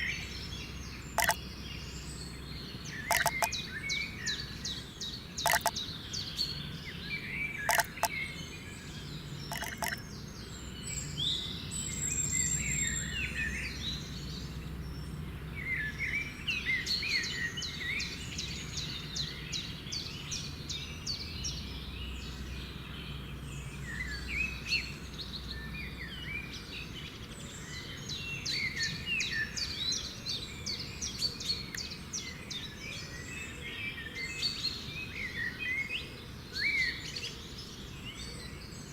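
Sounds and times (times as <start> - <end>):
birds chirping and singing: 0.0 - 1.4, 3.1 - 4.2, 5.2 - 6.3, 9.2 - 11.1
sharp clicks: 3.1 - 3.5, 5.5 - 5.7, 7.7 - 8.1, 9.5 - 10.0.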